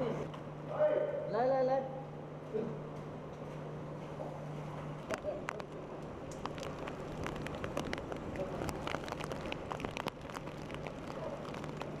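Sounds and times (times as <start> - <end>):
low steady hum: 0.0 - 12.0
sharp raindrops striking close: 5.0 - 12.0
heavy rain: 5.5 - 12.0.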